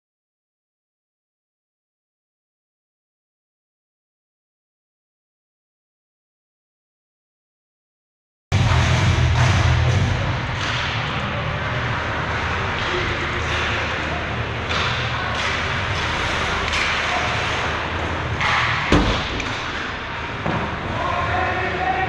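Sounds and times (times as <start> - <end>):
skates scraping ice: 10.6 - 21.8
sharp knock: 18.9 - 19.6.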